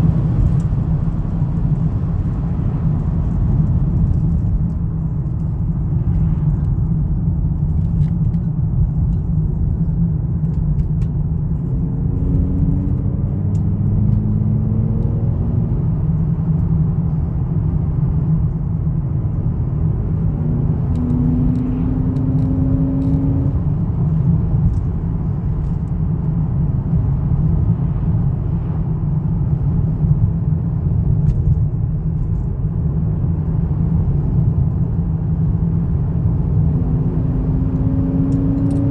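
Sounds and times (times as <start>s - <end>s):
car engine running: 0.0s - 30.2s.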